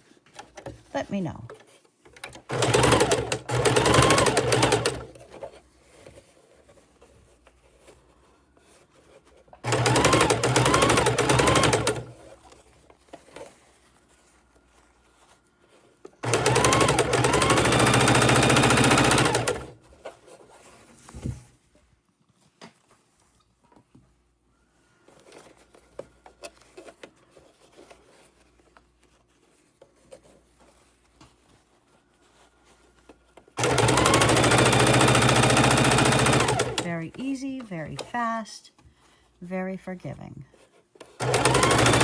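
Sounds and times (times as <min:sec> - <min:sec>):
electric sewing machine stitching: 0:02.2 - 0:05.5, 0:09.6 - 0:12.4, 0:16.2 - 0:19.8, 0:33.6 - 0:38.3, 0:41.0 - 0:42.0.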